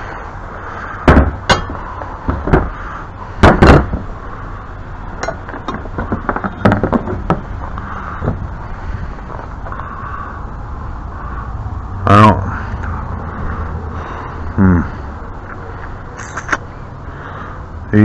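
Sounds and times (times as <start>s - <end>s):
metal pipe fittings clinking: 5.2s - 5.8s.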